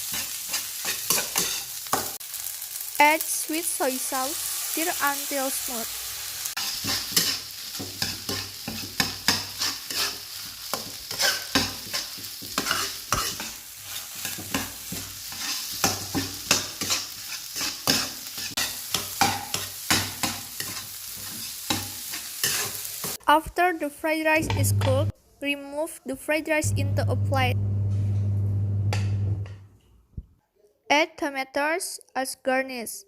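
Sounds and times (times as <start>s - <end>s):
rice sizzling in a frying pan: 0.0s - 23.2s.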